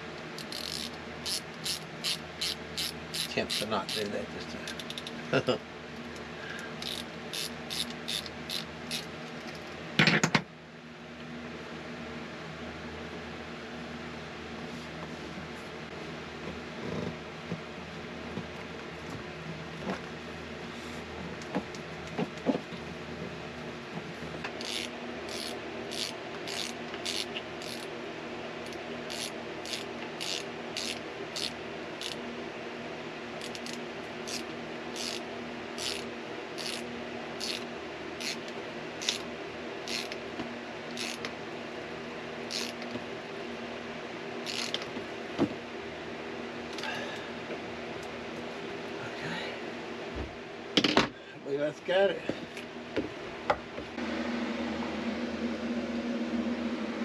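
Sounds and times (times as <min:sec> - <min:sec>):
socket ratchet clicking: 0:00.4 - 0:04.0, 0:04.7 - 0:05.2, 0:06.8 - 0:09.1, 0:24.6 - 0:27.8, 0:29.1 - 0:32.2, 0:33.4 - 0:35.2, 0:35.8 - 0:36.0, 0:36.6 - 0:36.8, 0:37.4 - 0:37.6, 0:39.9 - 0:40.2, 0:40.9 - 0:41.3, 0:42.5 - 0:42.9, 0:44.5 - 0:44.8.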